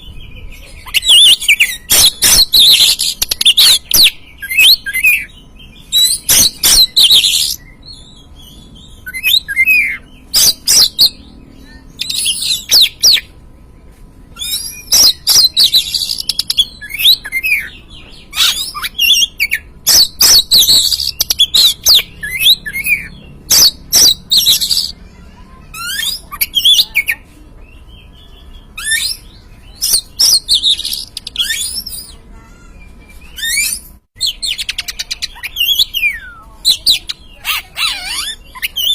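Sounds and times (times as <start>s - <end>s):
bird singing whistles: 0.8s - 13.3s, 14.4s - 17.8s, 28.8s - 32.2s.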